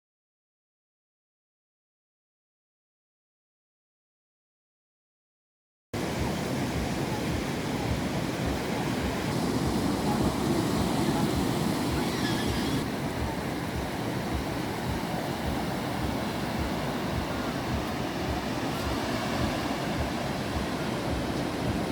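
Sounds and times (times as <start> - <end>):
sea surf washing: 6.0 - 21.9
wind buffeting microphone: 6.0 - 21.9.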